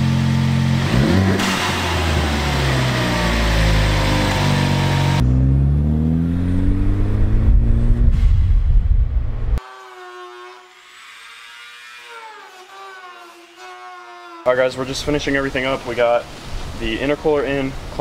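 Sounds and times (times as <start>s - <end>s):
car engine accelerating: 0.0s - 9.6s.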